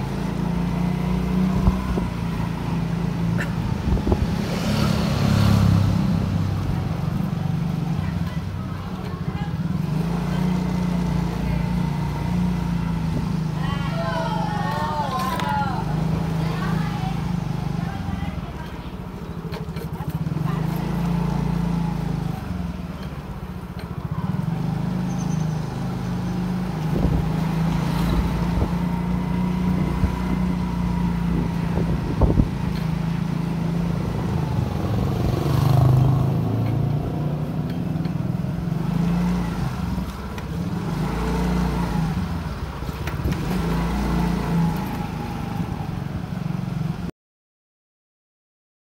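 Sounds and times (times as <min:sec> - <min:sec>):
road and wind noise: 0:00.0 - 0:47.1.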